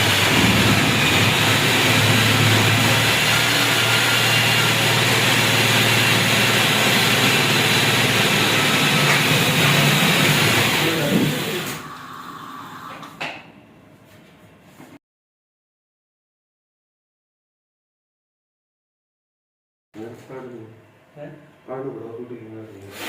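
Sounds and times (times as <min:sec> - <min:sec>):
power tool motor running: 0:00.0 - 0:13.1.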